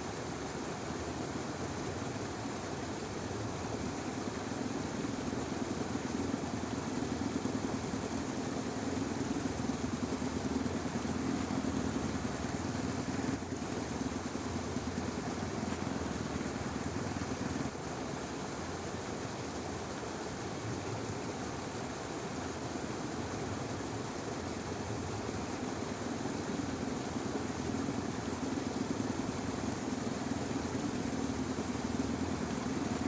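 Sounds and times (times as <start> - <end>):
motor humming: 3.2 - 17.8.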